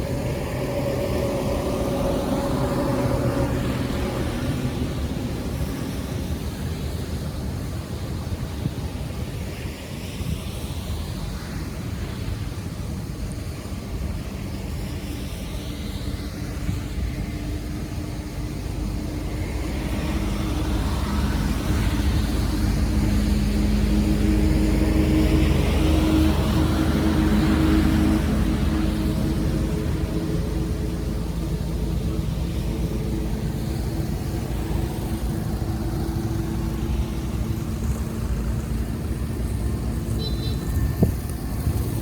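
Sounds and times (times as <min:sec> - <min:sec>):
vehicle engine approaching: 0:00.0 - 0:07.2, 0:17.2 - 0:42.0.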